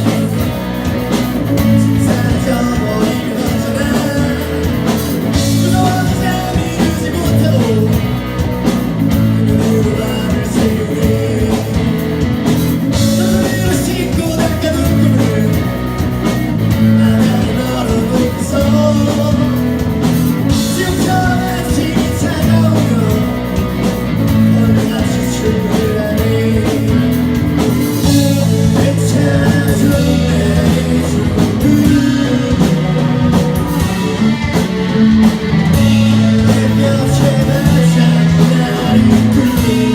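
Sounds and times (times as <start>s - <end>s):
bass guitar: 0.0s - 39.9s
drum kit: 0.0s - 39.9s
electric guitars: 0.0s - 39.9s
person singing lead vocals: 0.0s - 39.9s.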